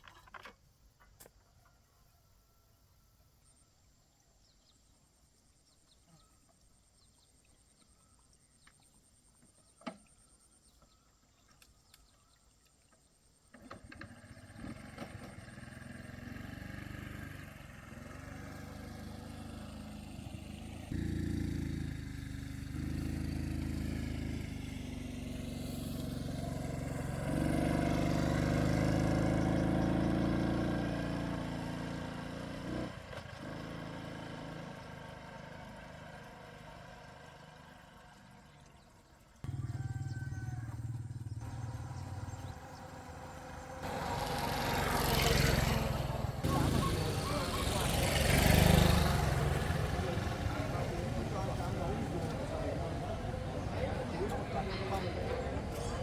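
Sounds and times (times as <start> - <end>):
small engine running: 13.5 - 56.0.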